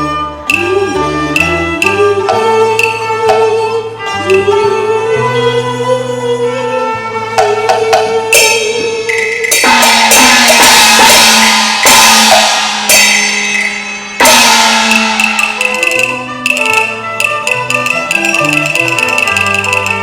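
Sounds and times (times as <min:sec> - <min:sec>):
held melodic tones: 0:08.3 - 0:20.0
ringing percussion crashes: 0:08.3 - 0:20.0.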